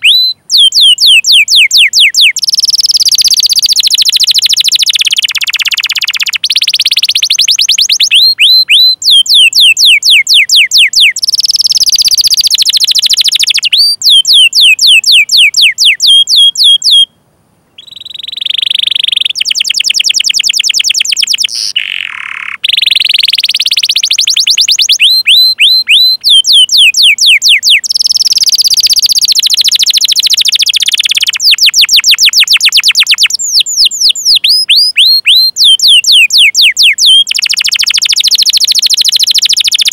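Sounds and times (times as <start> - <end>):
canary singing with trills: 0.0 - 39.9.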